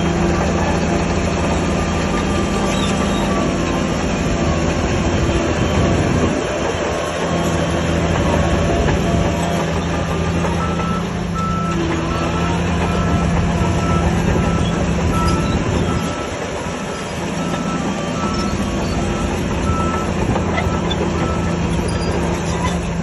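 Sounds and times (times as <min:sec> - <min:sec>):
heavy machine diesel engine: 0:00.0 - 0:23.0
reversing alarm beeping: 0:07.2 - 0:22.3.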